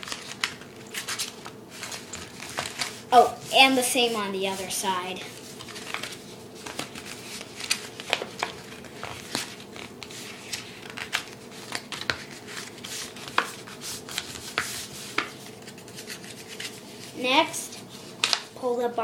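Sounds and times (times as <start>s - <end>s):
paper being folded and creased: 0.0s - 17.2s, 17.8s - 18.5s.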